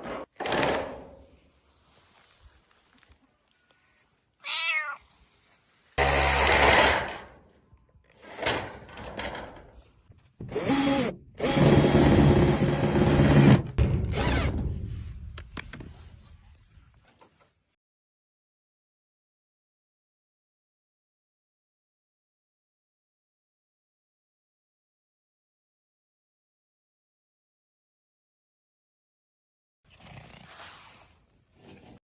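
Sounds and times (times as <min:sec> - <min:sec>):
cat meowing: 0:04.4 - 0:05.1.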